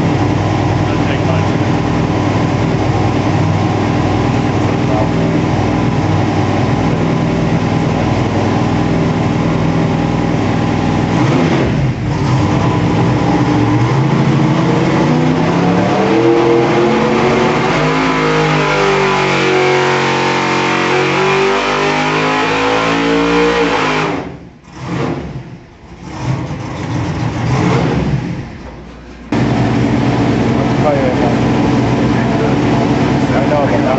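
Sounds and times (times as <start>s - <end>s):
engine revving on a dyno: 0.0s - 28.7s, 29.3s - 33.9s.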